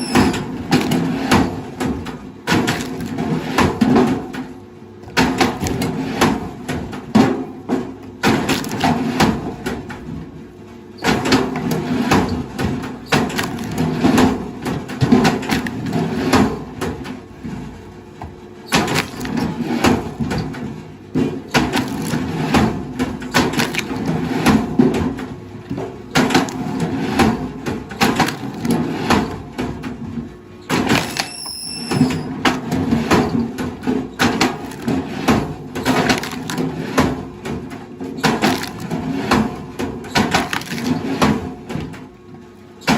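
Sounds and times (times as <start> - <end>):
wood cracking and splintering: 13.2 - 14.2, 21.6 - 22.5, 23.3 - 24.2, 34.2 - 37.3, 38.2 - 39.5, 40.1 - 41.0.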